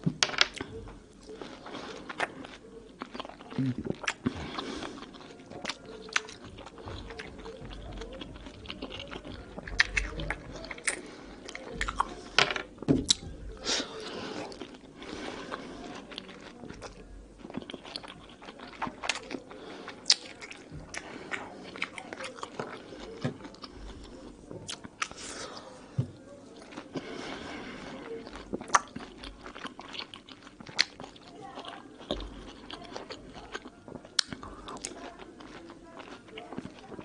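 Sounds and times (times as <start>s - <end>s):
person chewing fruit: 0.0s - 37.0s.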